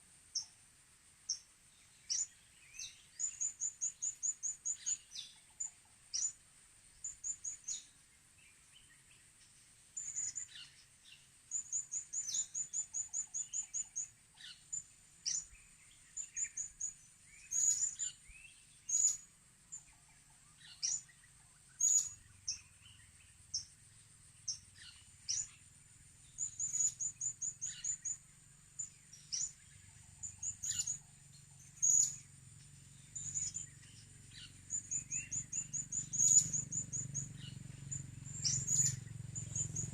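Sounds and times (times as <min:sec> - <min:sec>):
parrots chirping: 0:30.2 - 0:31.0.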